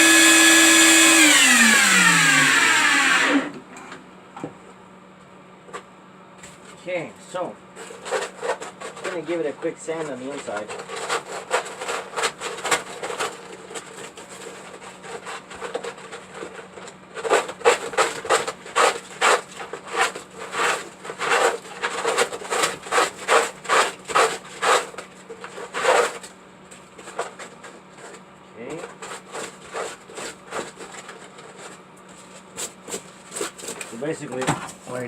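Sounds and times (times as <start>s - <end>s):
sandpaper rubbing back and forth: 17.2s - 26.2s.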